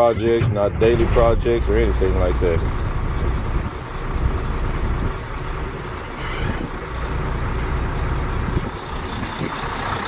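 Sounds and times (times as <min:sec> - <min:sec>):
diesel truck engine idling roughly: 0:00.0 - 0:10.0.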